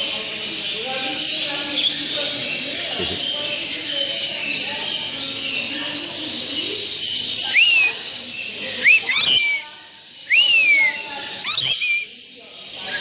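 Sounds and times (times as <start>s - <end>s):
birds chattering and twittering: 0.0s - 13.0s
bird whistling: 7.5s - 8.1s, 8.8s - 9.7s, 10.3s - 12.1s.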